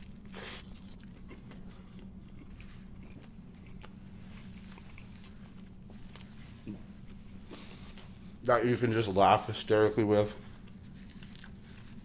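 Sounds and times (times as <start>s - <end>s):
biting into sandwich: 0.0s - 7.2s, 10.6s - 12.0s
chewing with wet mouth clicks: 0.0s - 7.2s, 10.6s - 12.0s
steady low hum: 0.0s - 12.0s.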